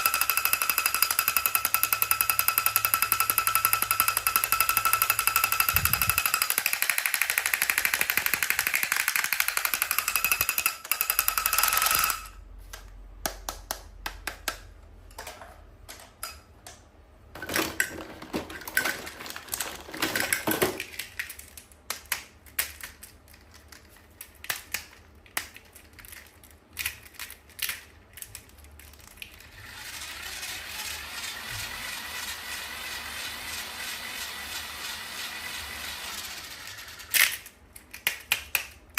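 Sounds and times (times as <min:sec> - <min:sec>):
fast rattling buzz: 0:00.0 - 0:12.3
toys and packaging handled: 0:17.4 - 0:30.2.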